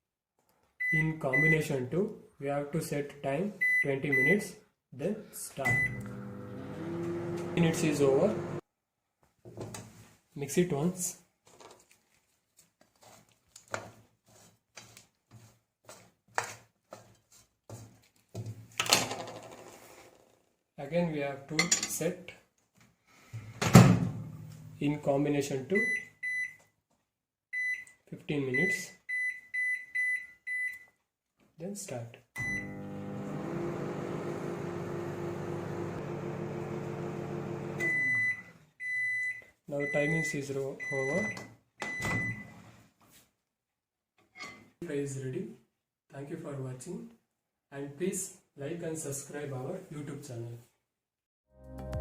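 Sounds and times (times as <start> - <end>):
microwave oven humming: 5.7 - 8.6, 32.4 - 38.5.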